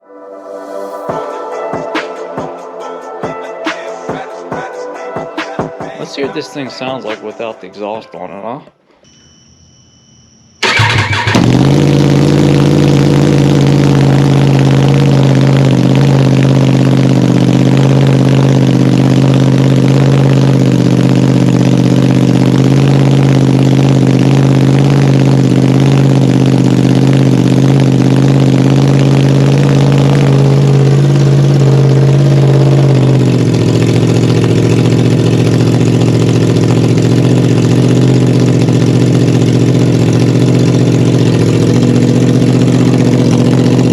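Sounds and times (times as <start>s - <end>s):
motorcycle engine idling loudly: 10.6s - 43.9s.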